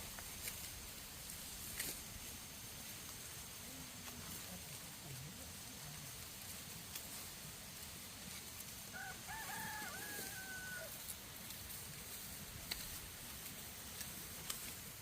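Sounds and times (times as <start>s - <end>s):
rooster crowing: 8.9s - 11.0s.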